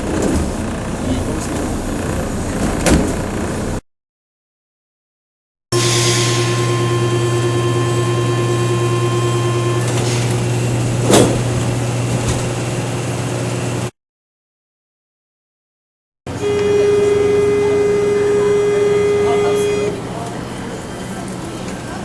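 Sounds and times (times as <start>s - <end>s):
train door warning buzzer: 5.8s - 11.8s, 16.3s - 21.2s
low hum: 5.8s - 13.5s.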